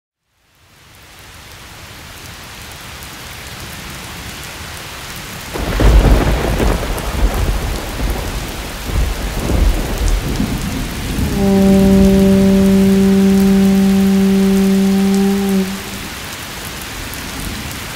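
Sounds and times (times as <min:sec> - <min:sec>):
steady rain: 0:00.2 - 0:17.9
thunder clap and rumble: 0:05.6 - 0:16.1
low held tone: 0:11.3 - 0:16.1.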